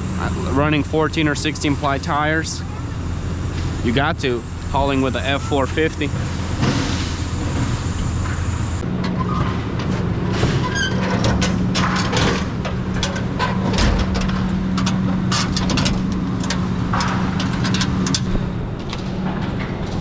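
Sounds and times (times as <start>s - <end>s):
vehicle engine humming: 0.0s - 10.4s.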